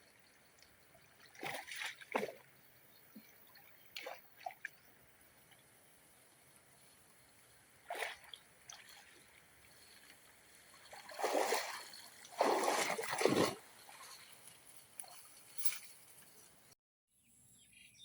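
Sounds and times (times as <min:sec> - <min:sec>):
net splashing in water: 0:01.2 - 0:02.4, 0:07.9 - 0:09.2, 0:10.8 - 0:14.2.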